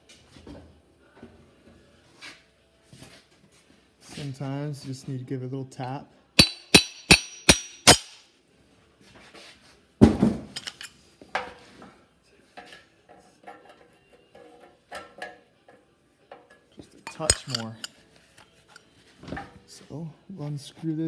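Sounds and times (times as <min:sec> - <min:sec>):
metal parts clinking and rattling: 0:06.4 - 0:08.2, 0:10.5 - 0:11.0, 0:17.1 - 0:18.0
sharp ringing metal taps: 0:06.4 - 0:08.2, 0:17.1 - 0:17.9.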